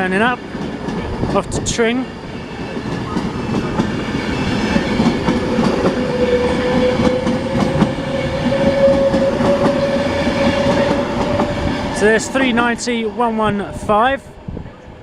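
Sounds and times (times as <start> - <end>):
electric train motor whine: 2.1 - 13.2.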